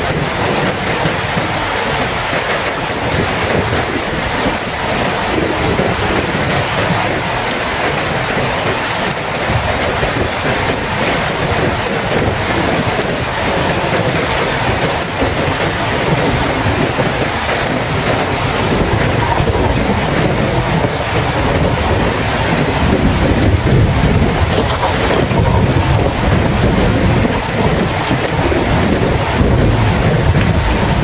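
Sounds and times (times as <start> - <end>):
deep rumble of thunder: 0.0 - 31.0
heavy rain: 0.0 - 31.0.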